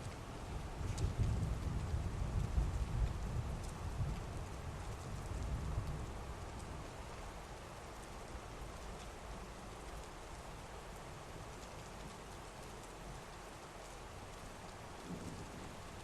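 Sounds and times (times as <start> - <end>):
heavy rain: 0.0 - 16.0
thunder rumble: 14.9 - 16.0.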